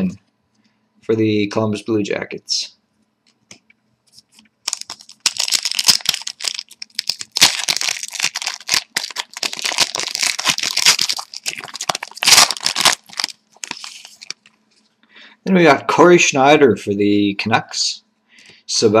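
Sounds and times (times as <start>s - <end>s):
wrapper crinkling and tearing: 4.6s - 14.5s.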